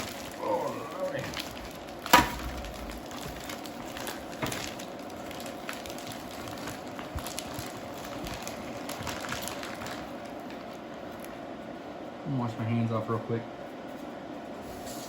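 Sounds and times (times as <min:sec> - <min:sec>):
plastic bag crinkling: 0:00.0 - 0:11.4
faint steady hum: 0:00.0 - 0:15.0.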